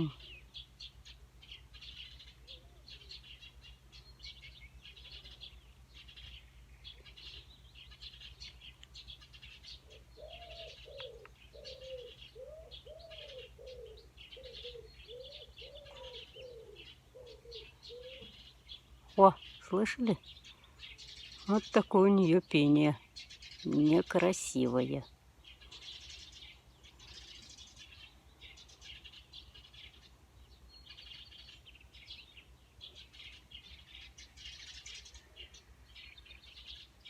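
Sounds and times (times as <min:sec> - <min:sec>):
small birds chirping: 0:00.0 - 0:37.0
pigeon-like bird calling: 0:06.9 - 0:18.5.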